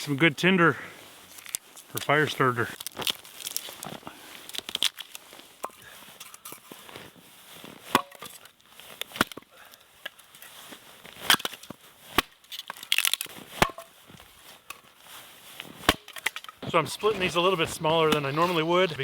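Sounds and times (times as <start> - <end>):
wood splintering crackle: 1.3 - 6.8, 11.1 - 13.9, 15.5 - 19.0
axe chopping firewood: 5.6 - 5.9, 7.8 - 8.3, 9.0 - 9.5, 11.2 - 14.0, 15.7 - 16.6.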